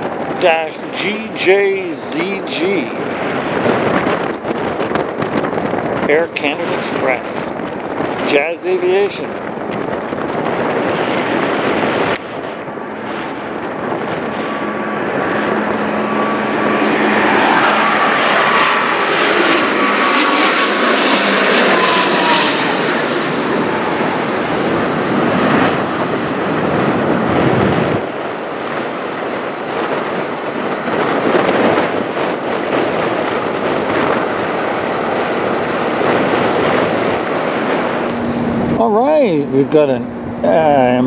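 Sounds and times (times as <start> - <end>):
turboprop aircraft flying over: 0.0 - 41.0.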